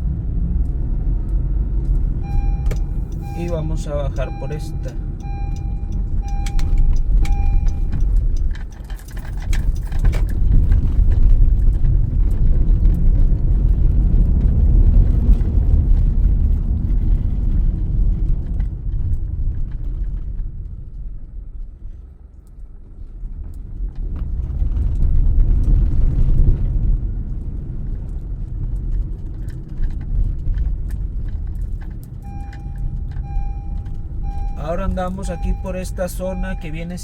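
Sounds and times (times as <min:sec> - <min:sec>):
car road and engine rumble: 0:00.0 - 0:37.0
short beeps: 0:02.2 - 0:08.0, 0:32.2 - 0:37.0.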